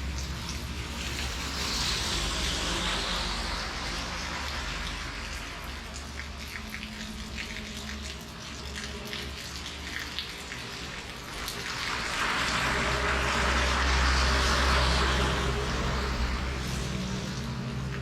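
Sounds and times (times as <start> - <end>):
steady rain falling: 0.0 - 18.0
low rumble: 11.8 - 18.0.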